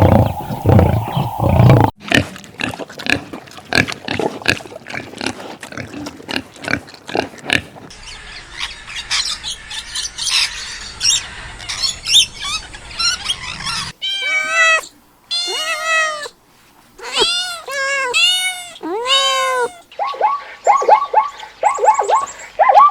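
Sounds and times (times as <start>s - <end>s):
pig grunting and squealing: 0.0s - 7.7s
cat meowing: 14.0s - 16.4s, 17.0s - 19.9s.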